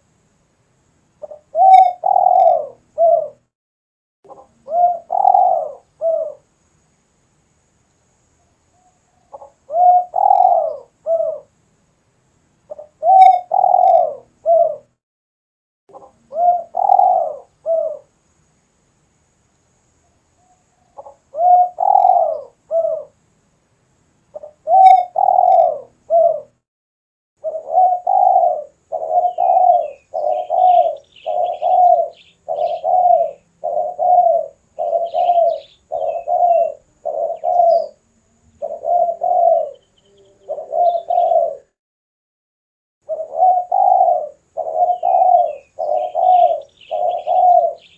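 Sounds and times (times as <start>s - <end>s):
dove cooing: 1.2s - 3.4s, 4.3s - 6.5s, 9.1s - 11.5s, 12.7s - 14.9s, 15.9s - 18.1s, 20.4s - 23.2s, 24.3s - 26.6s, 27.4s - 41.8s, 43.0s - 47.9s
small bird chirping: 1.2s - 3.5s, 4.3s - 6.5s, 8.2s - 11.5s, 12.6s - 14.9s, 15.9s - 18.3s, 19.9s - 23.2s, 24.3s - 26.6s, 27.4s - 41.8s, 43.0s - 47.9s.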